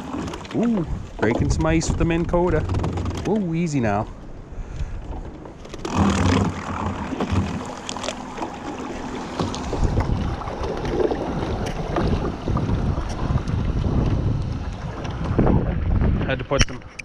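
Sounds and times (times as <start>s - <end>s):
wind buffeting microphone: 0.0s - 17.0s
ice knocking against boat hull: 0.3s - 3.6s.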